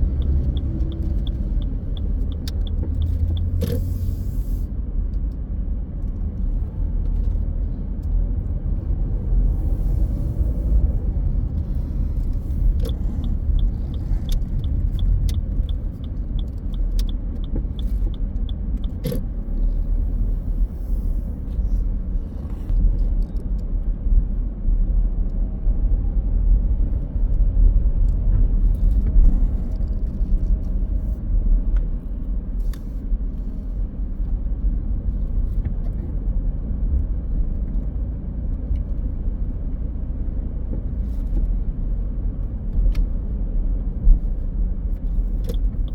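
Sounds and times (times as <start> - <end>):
light even ticking: 0.0 - 3.8, 11.1 - 19.2
car engine and road rumble: 0.0 - 45.9.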